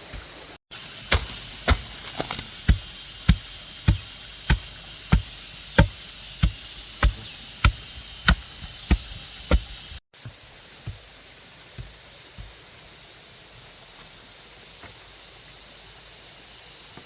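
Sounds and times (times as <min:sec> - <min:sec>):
constant hiss: 0:00.0 - 0:17.0
hand tool striking solid material: 0:01.0 - 0:12.6.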